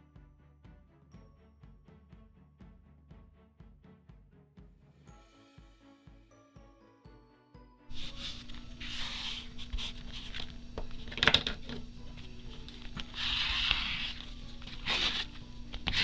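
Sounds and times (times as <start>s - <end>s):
paper and cloth rustling: 7.9s - 16.0s.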